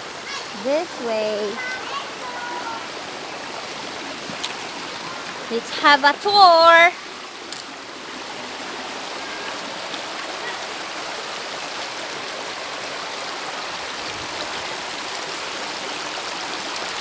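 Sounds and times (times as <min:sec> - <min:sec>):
shallow river water flowing: 0:00.0 - 0:17.0.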